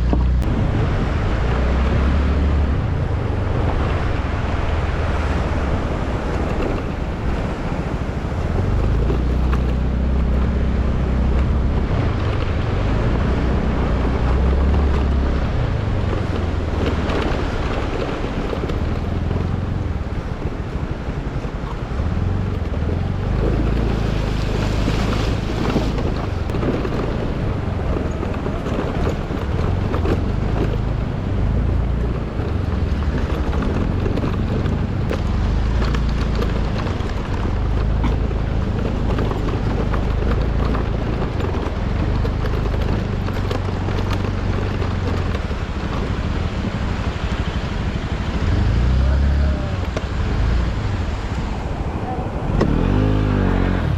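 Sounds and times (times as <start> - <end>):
vehicle engine running: 0.0 - 53.9
wind buffeting microphone: 0.0 - 53.9.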